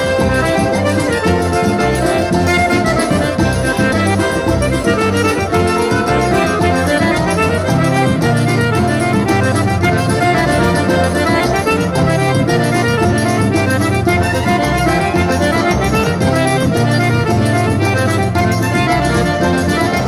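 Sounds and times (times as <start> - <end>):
accordion-led folk dance music: 0.0 - 20.0.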